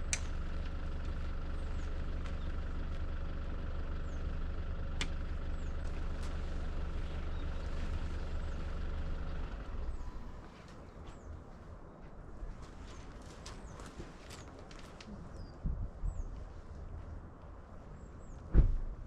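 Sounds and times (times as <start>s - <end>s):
vehicle engine idling: 0.0s - 11.7s
small birds chirping: 0.0s - 12.0s, 12.7s - 17.0s.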